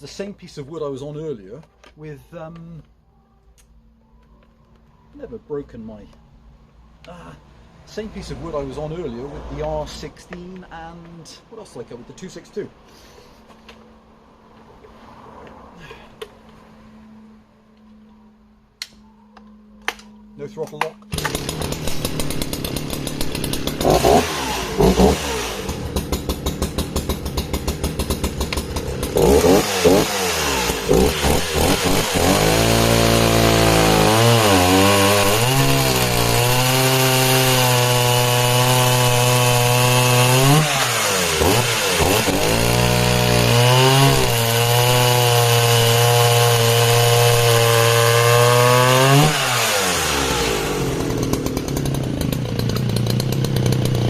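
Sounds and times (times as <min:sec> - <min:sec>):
chainsaw cutting log: 0:21.1 - 0:54.0.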